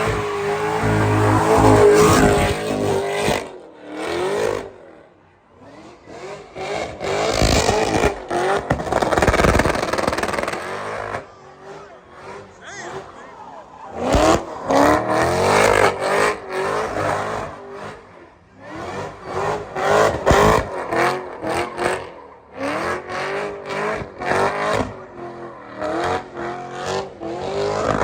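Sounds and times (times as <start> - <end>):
supercharger whine: 0.0 - 3.5
car engine revving: 0.0 - 28.0.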